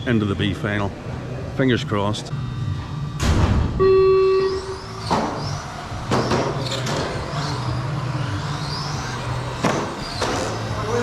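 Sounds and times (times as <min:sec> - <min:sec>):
race start tone: 0:03.8 - 0:05.0
toy car electric motors whining: 0:04.4 - 0:11.0.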